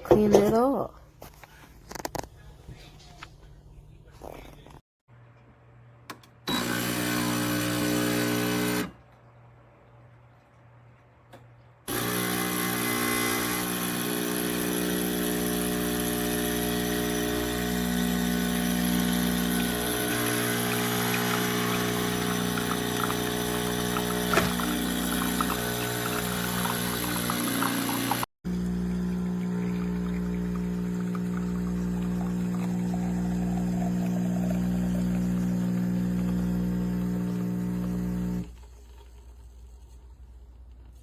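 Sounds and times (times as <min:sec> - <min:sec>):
espresso machine pump running: 0:06.5 - 0:08.9, 0:11.9 - 0:39.4.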